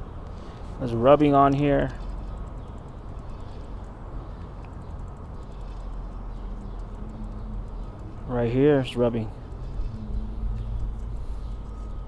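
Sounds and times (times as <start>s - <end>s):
bicycle wheel ticking: 0.0s - 12.0s
low background hum: 0.0s - 12.0s.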